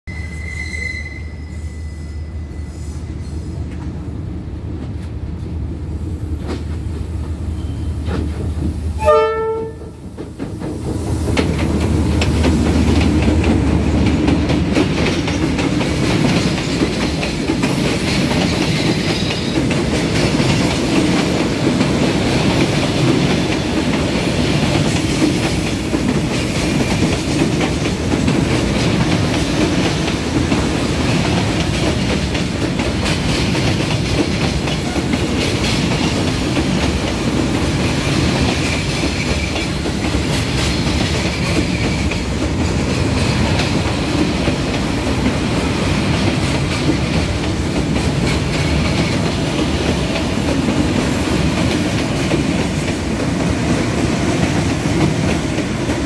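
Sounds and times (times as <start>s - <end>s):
train horn blast: 9.0s - 10.0s.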